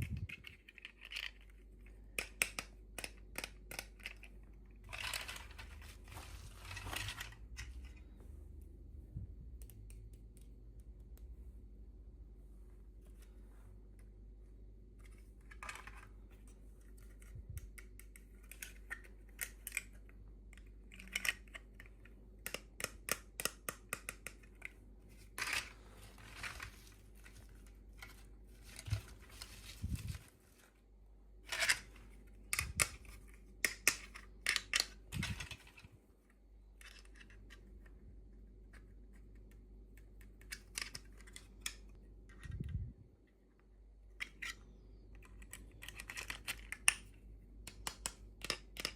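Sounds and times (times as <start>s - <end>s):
plastic toy packaging crinkling: 4.8s - 7.8s, 25.2s - 30.8s.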